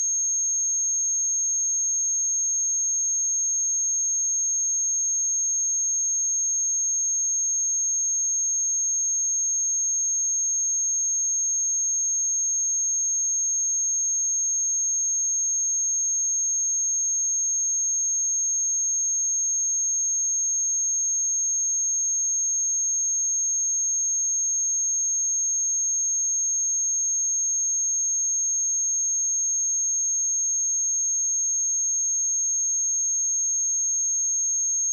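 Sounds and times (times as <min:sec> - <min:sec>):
high-pitched sine test tone: 0:24.9 - 0:34.9.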